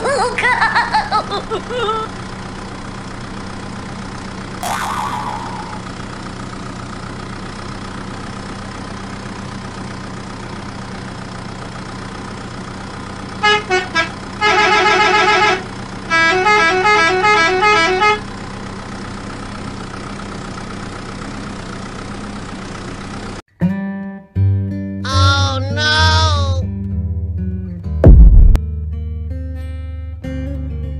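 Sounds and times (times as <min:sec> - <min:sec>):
warbling tone: 0:04.6 - 0:05.9
electronic toy horn: 0:13.4 - 0:18.2.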